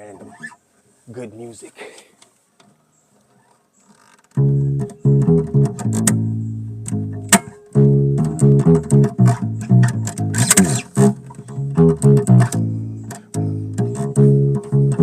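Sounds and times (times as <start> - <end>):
bass guitar plucked notes: 4.4 - 15.0
sharp clicks: 10.1 - 11.1.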